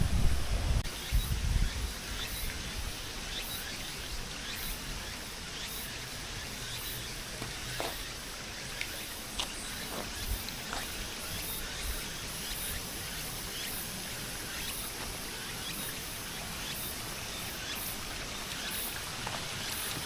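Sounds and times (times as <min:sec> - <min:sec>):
high-pitched insect chirring: 0:00.9 - 0:20.0
small ticks: 0:04.4 - 0:20.0.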